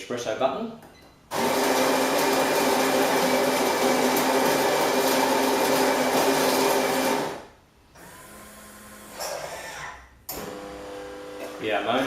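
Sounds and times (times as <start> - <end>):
coffee grinder grinding beans: 1.4 - 7.4.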